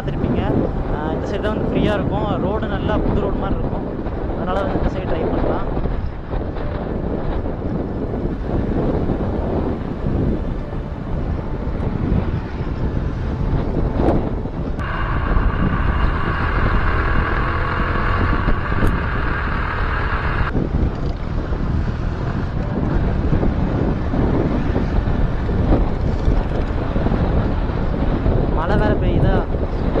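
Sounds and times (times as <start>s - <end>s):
wind buffeting microphone: 0.0s - 30.0s
motorcycle engine running: 5.9s - 30.0s
high-pitched hum: 8.3s - 20.6s.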